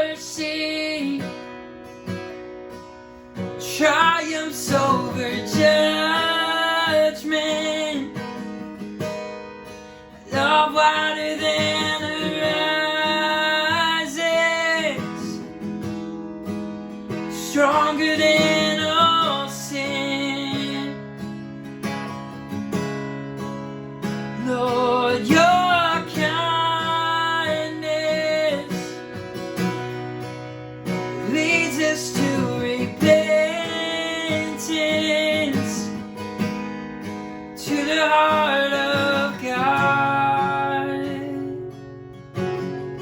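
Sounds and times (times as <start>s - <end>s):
acoustic guitar strumming: 0.0s - 43.0s
person singing worship song: 3.7s - 8.1s, 10.2s - 15.4s, 24.4s - 29.0s, 31.2s - 35.9s.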